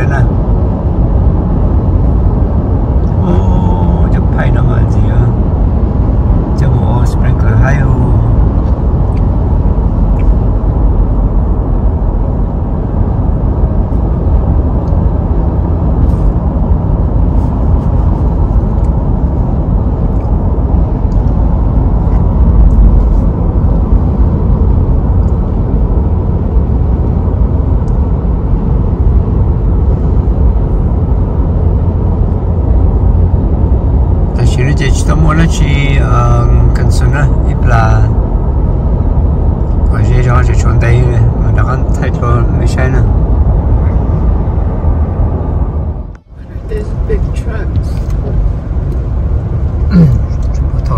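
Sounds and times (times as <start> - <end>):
road and engine noise in car: 0.0 - 50.9.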